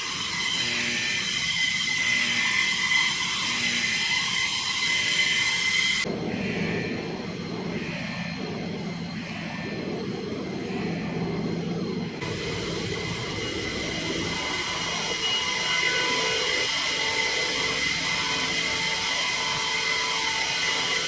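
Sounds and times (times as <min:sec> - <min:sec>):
fighter jet engines whining: 0:00.0 - 0:21.0.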